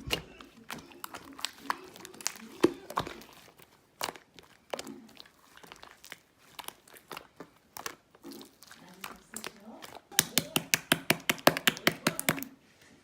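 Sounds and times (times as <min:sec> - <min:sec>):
slime popping and crackling: 0:00.0 - 0:12.6.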